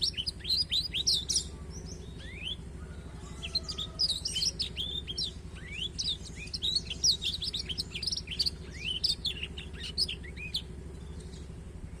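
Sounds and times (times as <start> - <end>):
finch chirps and trills: 0.0 - 12.0
steady low hum: 0.0 - 12.0.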